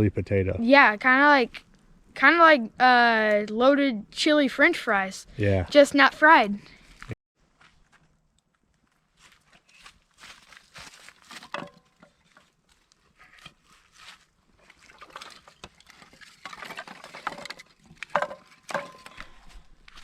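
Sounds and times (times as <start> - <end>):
rustling and scraping: 6.7 - 20.0.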